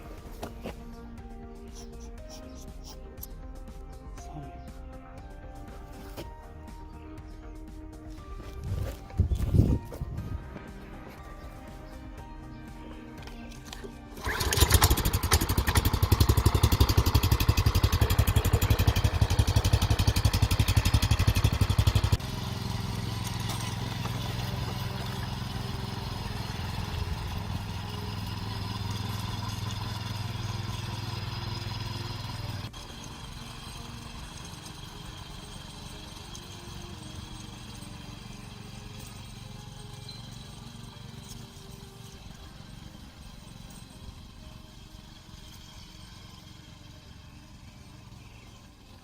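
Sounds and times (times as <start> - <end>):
small gasoline engine running: 12.8 - 49.0.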